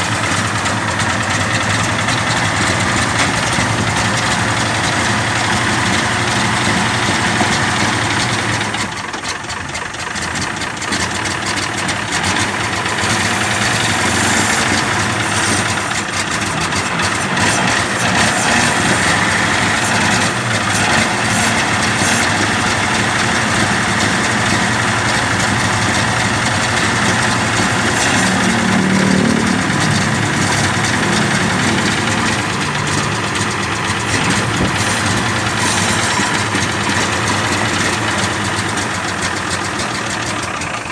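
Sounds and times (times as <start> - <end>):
truck engine idling: 0.0 - 40.9.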